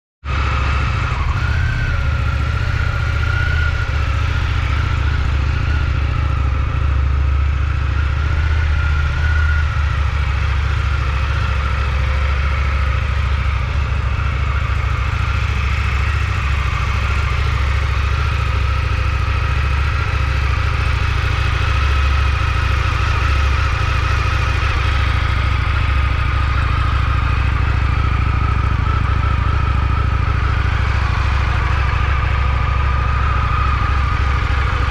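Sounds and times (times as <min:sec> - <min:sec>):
motorcycle engine idling: 0:00.3 - 0:34.9
high whine: 0:00.7 - 0:34.9.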